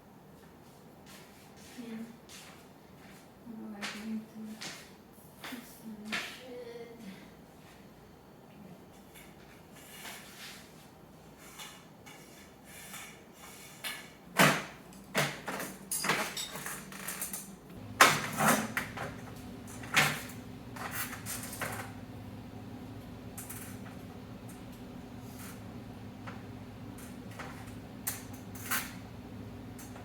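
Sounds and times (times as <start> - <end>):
curtain rod clacking and scraping: 11.4 - 22.0, 23.3 - 30.0
low steady hum: 17.7 - 30.0.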